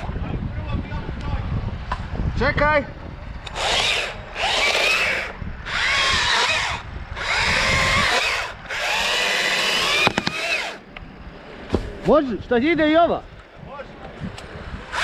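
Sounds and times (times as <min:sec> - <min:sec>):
electric chainsaw cutting wood: 0:03.4 - 0:10.8
sharp clicks: 0:09.9 - 0:11.0.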